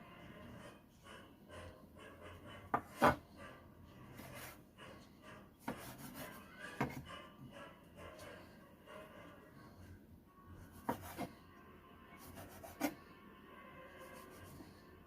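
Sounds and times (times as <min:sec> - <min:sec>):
knife scraping on cutting board: 0:02.7 - 0:03.2, 0:05.6 - 0:07.0, 0:10.8 - 0:11.3.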